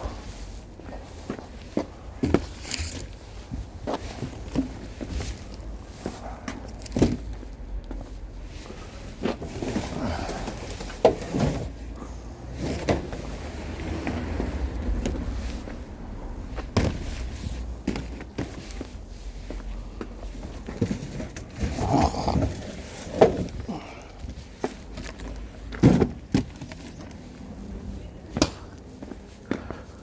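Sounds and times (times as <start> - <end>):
scuffling: 0.2 - 11.8
sharp knocks and thuds: 16.6 - 18.6.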